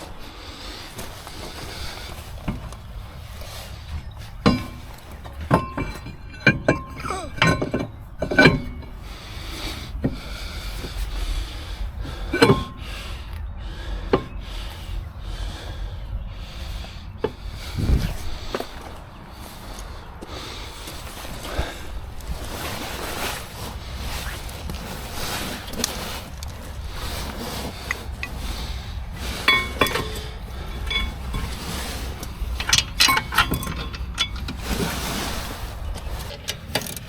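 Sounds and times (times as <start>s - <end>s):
metal objects clinking: 27.7s - 35.2s.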